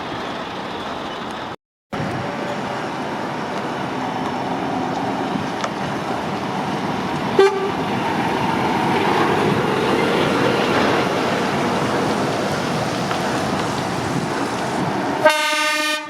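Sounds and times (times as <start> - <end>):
motorway traffic noise: 0.0 - 16.0
vehicle horn toot: 7.4 - 7.8, 15.2 - 16.0.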